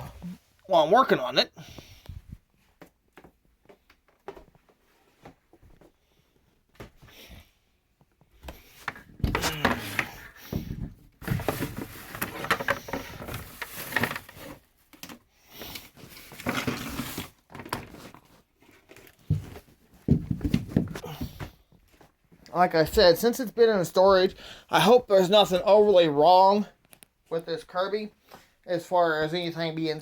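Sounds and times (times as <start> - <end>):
rustling and knocking handling: 17.5 - 22.5.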